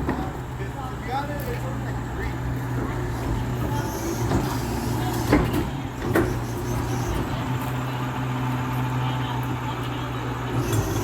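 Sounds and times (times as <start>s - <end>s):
garbage truck engine running: 1.7s - 11.0s.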